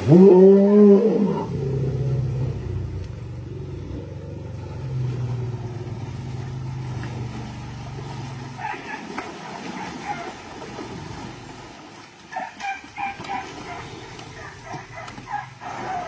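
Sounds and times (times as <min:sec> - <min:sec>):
elephant rumbling: 0:00.0 - 0:11.6, 0:12.3 - 0:16.0.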